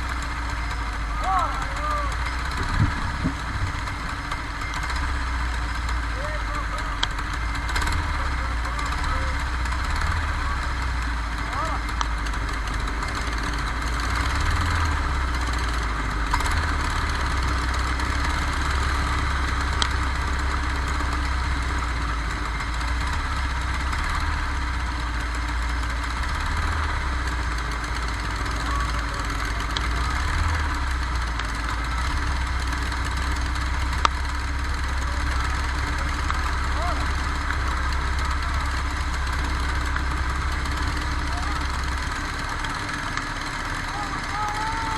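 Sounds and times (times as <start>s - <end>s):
kart engine droning: 0.0s - 44.9s
sharp clicks: 1.8s - 10.9s.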